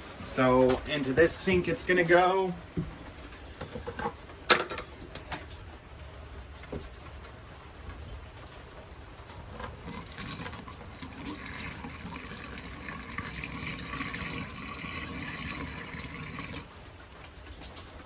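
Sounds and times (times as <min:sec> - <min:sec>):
liquid pouring into drain: 0:09.2 - 0:16.7.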